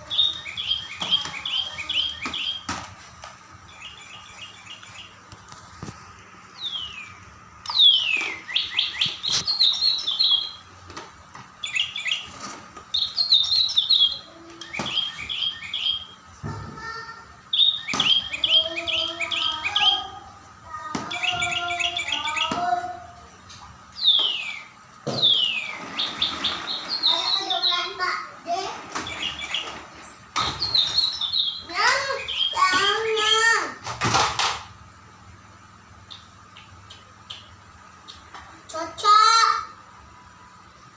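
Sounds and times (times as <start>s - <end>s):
songbird chirping and whistling: 0.0s - 2.8s, 3.6s - 5.2s, 6.5s - 10.7s, 11.6s - 16.4s, 17.4s - 20.4s, 21.0s - 23.0s, 23.9s - 28.1s, 29.0s - 33.5s, 36.0s - 38.4s.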